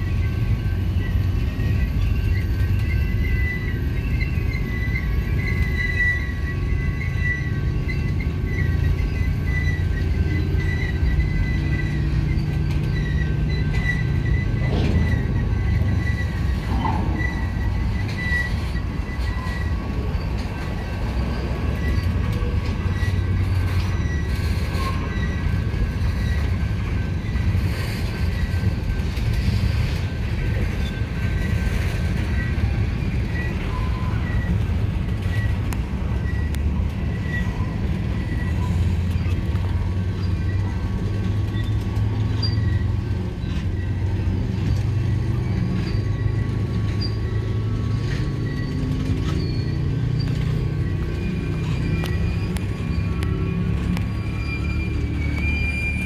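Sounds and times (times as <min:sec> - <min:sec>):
freight train cars rumbling: 0:00.0 - 0:56.0
high squeak: 0:00.4 - 0:56.0.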